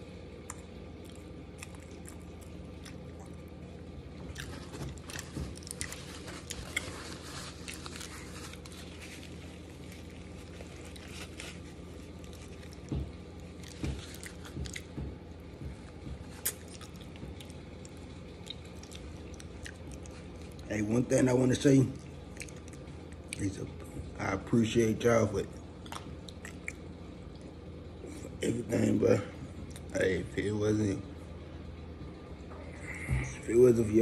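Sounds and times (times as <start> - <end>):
steady low hum: 0.0 - 34.0
mouth chewing: 0.4 - 15.0, 16.3 - 20.7, 22.0 - 23.5, 25.6 - 27.5
crisp potato chip crunches: 4.3 - 12.9.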